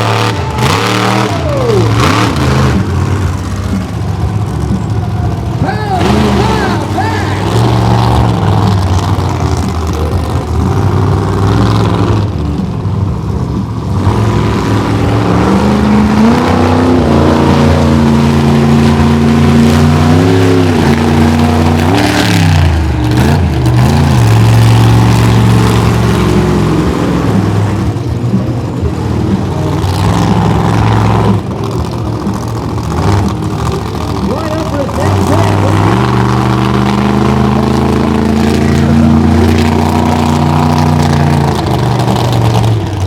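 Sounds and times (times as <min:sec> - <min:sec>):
monster truck engine revving: 0:00.0 - 0:43.0.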